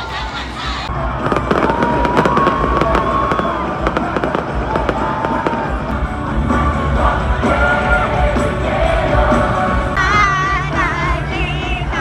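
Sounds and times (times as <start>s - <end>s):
crowd voices: 0.0s - 12.0s
fireworks banging and crackling: 0.9s - 6.9s.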